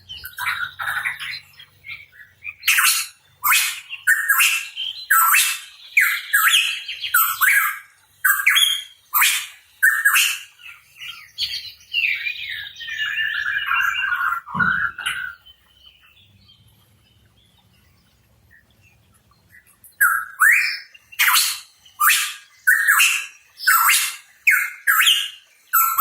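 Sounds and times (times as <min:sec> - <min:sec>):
bird calling harsh notes: 0:12.2 - 0:15.4, 0:20.0 - 0:26.0.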